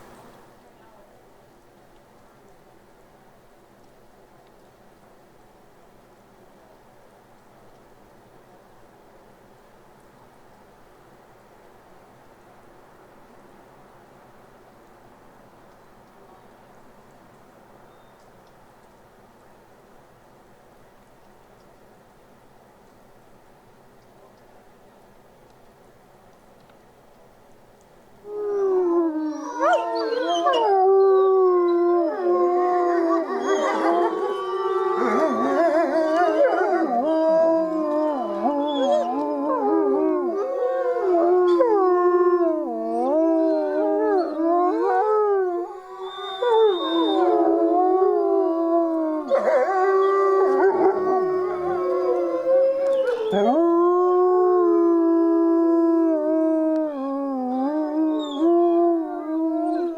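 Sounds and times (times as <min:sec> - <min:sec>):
wolves howling together: 0:28.3 - 0:59.9.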